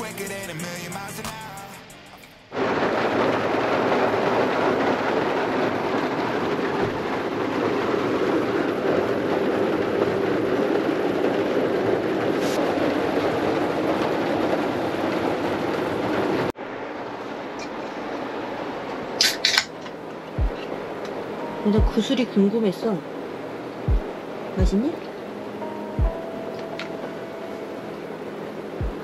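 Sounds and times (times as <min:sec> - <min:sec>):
heavy rain on a vehicle roof: 0:02.5 - 0:25.7.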